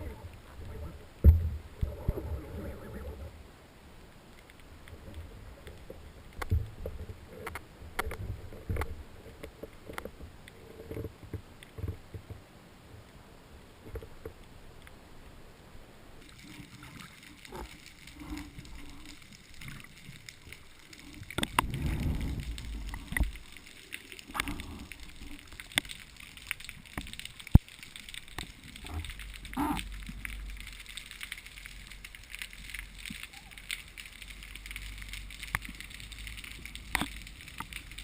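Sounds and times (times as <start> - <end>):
water sloshing and splashing: 16.2 - 38.0.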